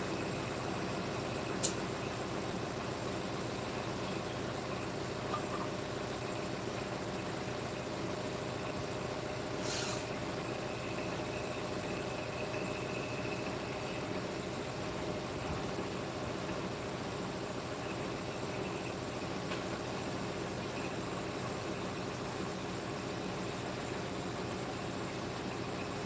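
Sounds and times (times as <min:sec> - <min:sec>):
machine humming: 0:00.0 - 0:26.0
brief hiss: 0:09.6 - 0:10.2.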